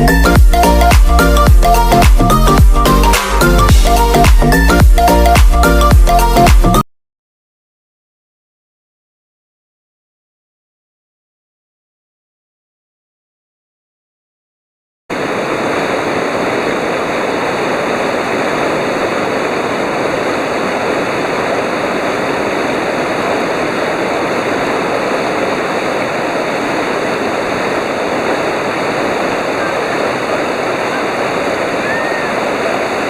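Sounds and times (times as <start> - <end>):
river rapids rushing: 15.1 - 33.0.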